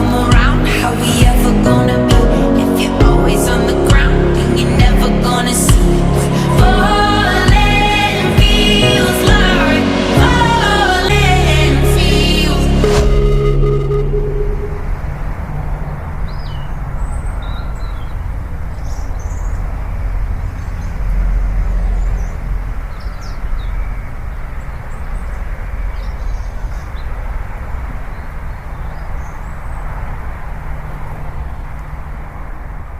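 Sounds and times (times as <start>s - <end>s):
rushing noise with low rumble: 0.0s - 32.9s
birds chirping: 13.4s - 31.9s.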